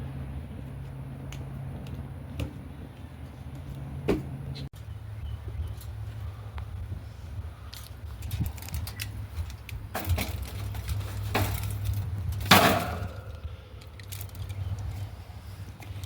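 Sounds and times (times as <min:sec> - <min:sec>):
steady low rumble: 0:00.0 - 0:16.0
objects clattering and clicking: 0:09.9 - 0:14.8.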